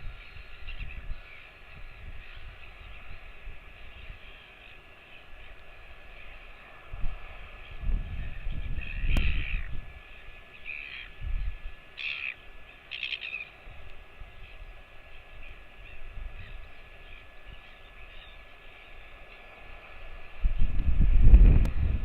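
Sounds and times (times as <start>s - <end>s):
bird calling: 7.6s - 20.4s.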